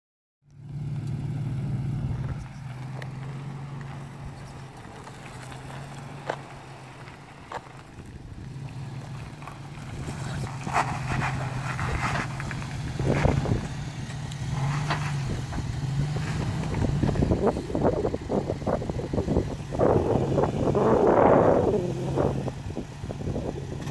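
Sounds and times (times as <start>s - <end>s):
truck engine at low revs: 0.4s - 23.9s
sharp clicks and crunching: 2.2s - 19.4s.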